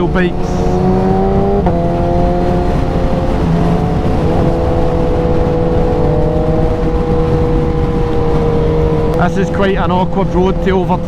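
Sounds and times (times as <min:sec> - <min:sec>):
motorcycle engine cruising: 0:00.0 - 0:11.0
wind rush on microphone: 0:00.0 - 0:11.0.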